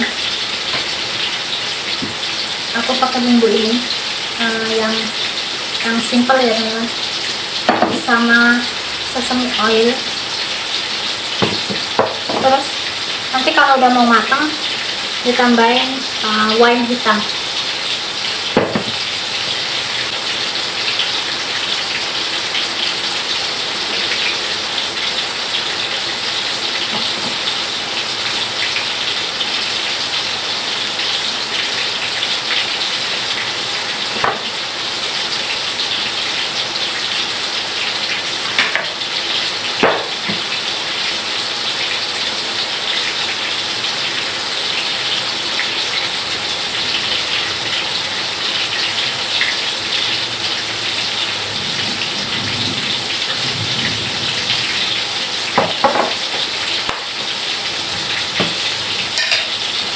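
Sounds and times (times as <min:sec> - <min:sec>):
heavy rain: 0:00.0 - 0:59.9
kitchen utensils clinking: 0:07.7 - 0:08.5, 0:11.4 - 0:12.8, 0:18.6 - 0:19.1, 0:26.8 - 0:27.6, 0:34.1 - 0:34.6, 0:38.5 - 0:39.0, 0:55.6 - 0:57.1, 0:58.4 - 0:59.7.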